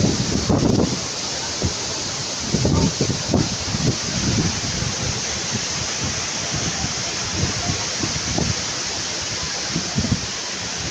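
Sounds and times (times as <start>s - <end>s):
waterfall rushing: 0.0s - 10.9s
wind buffeting microphone: 0.0s - 10.9s.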